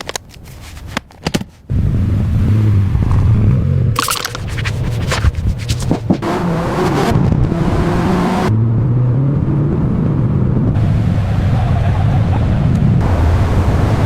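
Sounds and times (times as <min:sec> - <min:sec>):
car engine running: 0:01.7 - 0:08.5
wind noise: 0:01.7 - 0:14.0.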